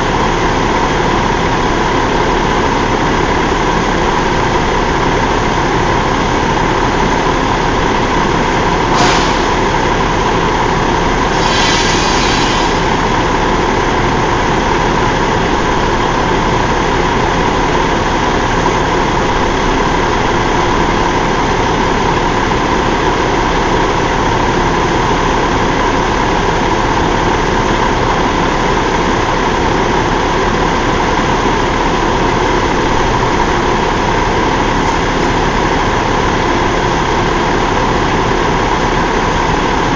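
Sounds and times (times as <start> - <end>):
diesel engine idling: 0.0 - 39.9
short hiss: 8.9 - 9.7, 11.3 - 13.0.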